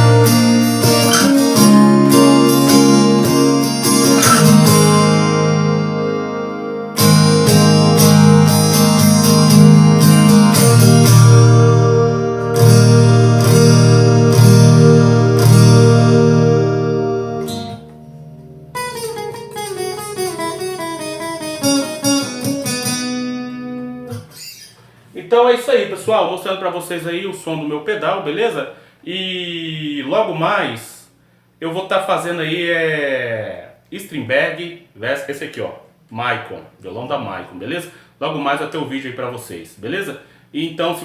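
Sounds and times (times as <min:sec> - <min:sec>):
acoustic guitar strummed chords: 0:00.0 - 0:24.7
picked guitar notes descending: 0:00.0 - 0:24.9.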